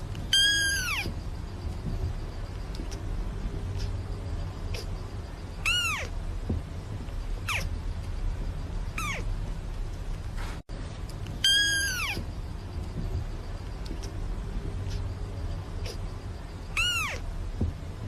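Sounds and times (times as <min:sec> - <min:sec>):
cat meowing: 0:00.3 - 0:01.1, 0:05.6 - 0:06.2, 0:09.0 - 0:09.3, 0:11.4 - 0:12.3, 0:16.7 - 0:17.2.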